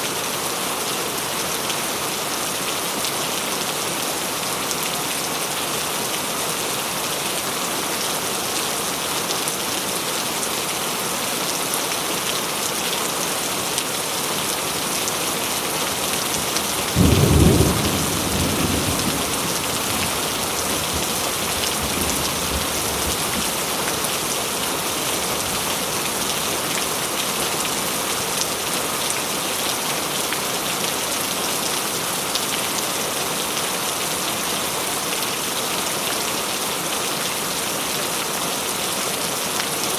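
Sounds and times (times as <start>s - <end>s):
heavy rain falling: 0.0s - 39.9s
thunder clap rumbling: 16.8s - 23.4s.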